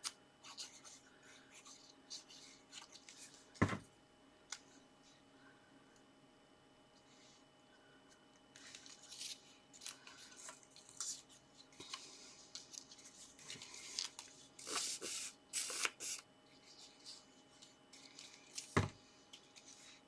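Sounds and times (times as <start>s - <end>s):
paper and card rustling: 8.6s - 18.8s.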